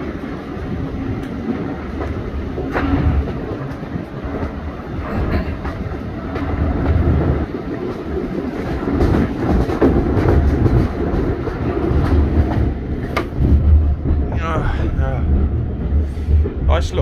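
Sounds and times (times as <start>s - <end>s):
train wheels rumbling on track: 0.0s - 17.0s
clicks over rail joints: 1.1s - 14.4s.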